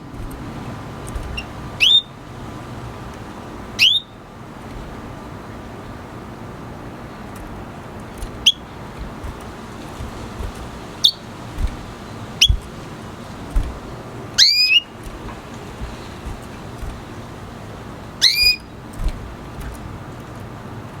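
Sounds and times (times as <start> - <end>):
soft low thumps: 0.0 - 1.6, 7.4 - 17.2, 18.4 - 20.0
bird chirping: 0.0 - 2.2, 3.8 - 4.2, 8.1 - 17.4, 18.1 - 19.8
steady background hiss: 0.0 - 21.0.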